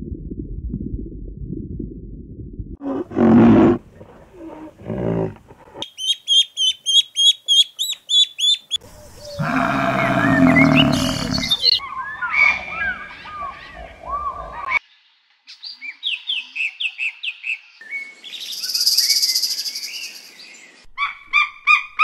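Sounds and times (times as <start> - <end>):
deep animal call: 2.8 - 5.8, 9.1 - 11.8
long low animal call: 2.8 - 5.8, 9.0 - 11.8.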